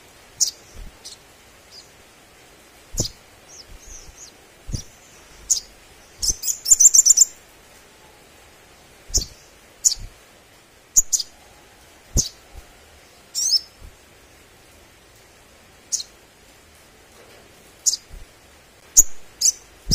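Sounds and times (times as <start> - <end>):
bird chirping and trilling: 0.4 - 2.0, 3.0 - 7.4, 9.1 - 10.2, 11.0 - 11.3, 12.2 - 12.4, 13.3 - 13.8, 17.8 - 18.1, 19.0 - 19.9
dull low thumps: 2.9 - 5.6.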